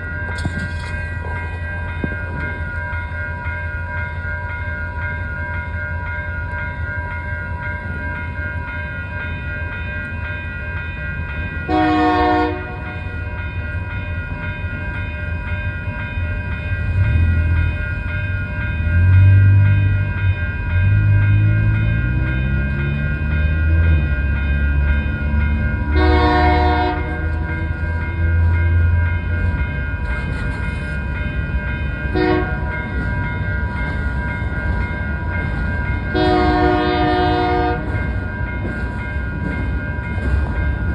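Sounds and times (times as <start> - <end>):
diesel train engine rumble: 0.0 - 40.9
train air horn blasts: 11.7 - 12.9, 26.0 - 27.2, 32.1 - 32.6, 36.1 - 37.9.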